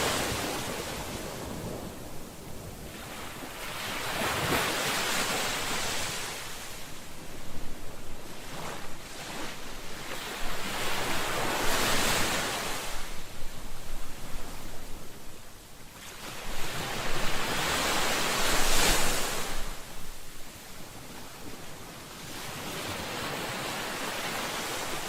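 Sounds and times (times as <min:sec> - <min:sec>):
ocean waves breaking on shore: 0:00.0 - 0:25.0.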